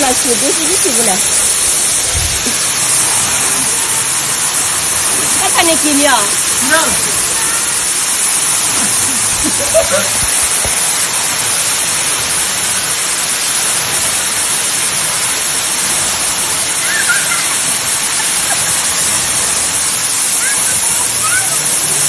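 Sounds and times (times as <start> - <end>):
faint voices: 0.0 - 11.1, 15.8 - 22.0
waterfall rushing: 0.0 - 22.0.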